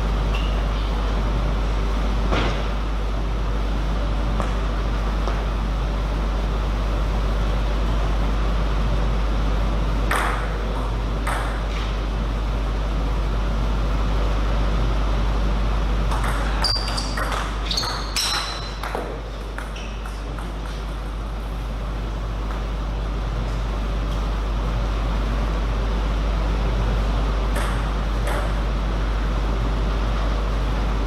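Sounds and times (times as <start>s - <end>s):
steady background hum: 0.0s - 31.0s
table tennis ball hits and bounces: 10.1s - 11.9s, 16.0s - 21.1s, 27.5s - 28.6s.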